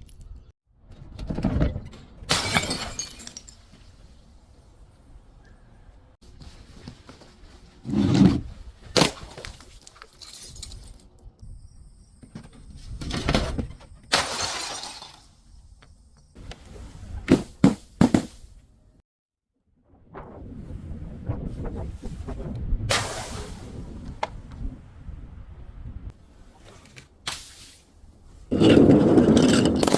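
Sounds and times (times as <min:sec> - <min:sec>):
glass bottle shattering: 0:02.3 - 0:03.8, 0:14.1 - 0:15.6.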